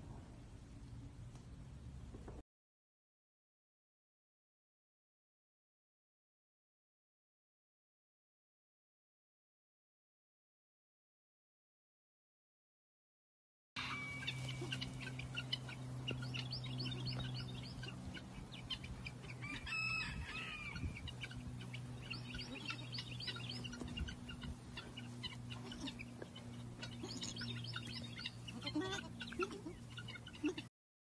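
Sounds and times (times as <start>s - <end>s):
loud multi-tone chick call: 13.8s - 30.7s
steady low hum: 13.8s - 30.7s
chicks peeping: 13.9s - 30.7s.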